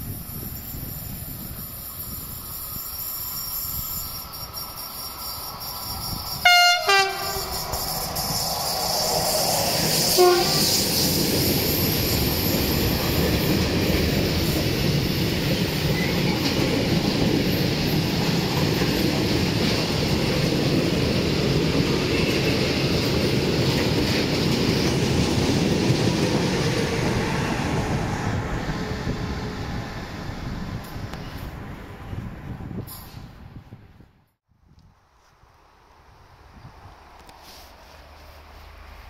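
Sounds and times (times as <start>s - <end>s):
freight wagons rumbling on rails: 0.0s - 33.6s
locomotive horn blast: 6.4s - 7.7s, 10.1s - 10.8s.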